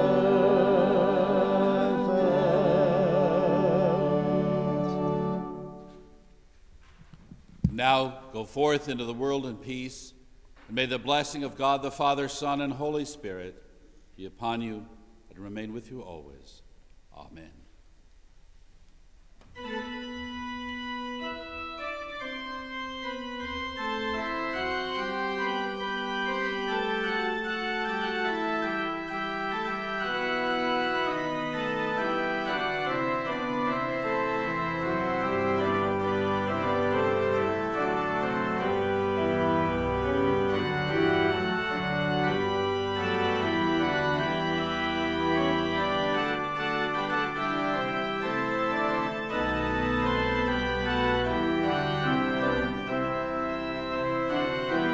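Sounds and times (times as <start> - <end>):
low organ bass notes: 0.0 - 6.1, 19.6 - 54.9
church organ chords: 0.0 - 6.3, 19.5 - 54.9.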